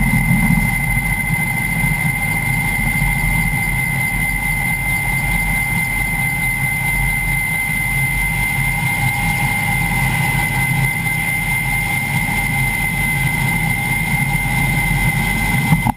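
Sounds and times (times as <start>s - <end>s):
helicopter engines and rotors: 0.0s - 15.9s.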